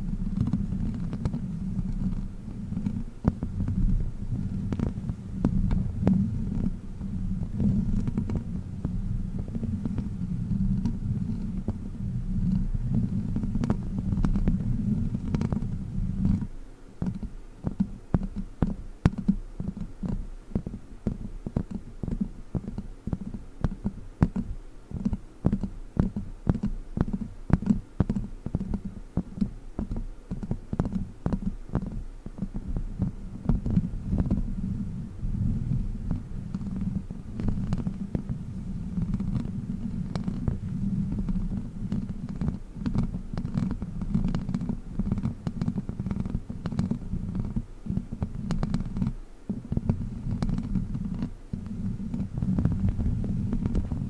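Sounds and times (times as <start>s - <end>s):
rubbing and scratching on microphone: 0.0s - 54.0s.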